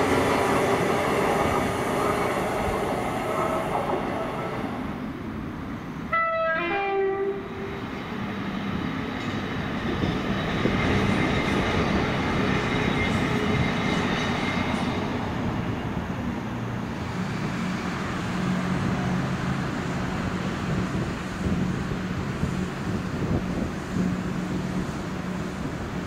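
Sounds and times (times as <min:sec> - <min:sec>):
train rumbling past: 0:00.0 - 0:26.0
two-note train horn: 0:06.1 - 0:07.7.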